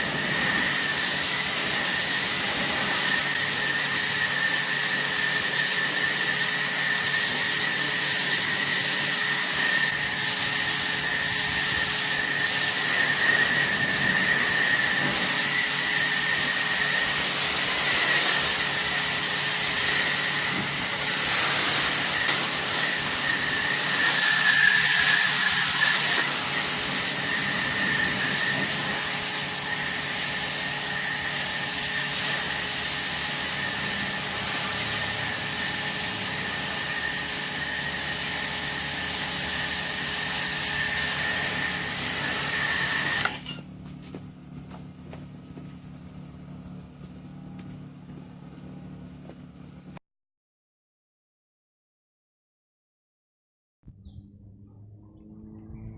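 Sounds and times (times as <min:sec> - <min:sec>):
pressure washer jet hissing: 0:00.0 - 0:43.4.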